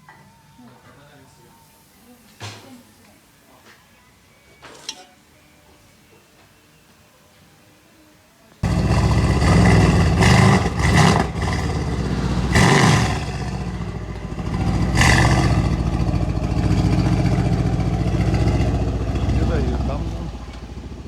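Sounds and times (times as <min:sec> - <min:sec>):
car engine revving and idling: 0:08.6 - 0:21.0.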